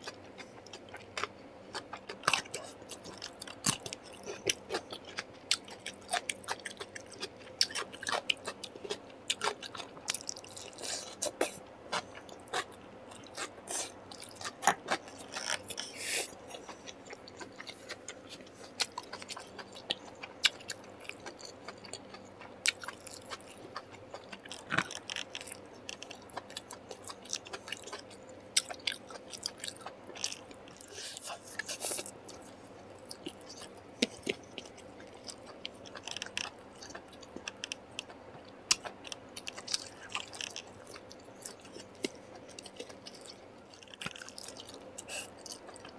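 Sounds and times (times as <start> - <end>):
food crunching: 0.0 - 45.9.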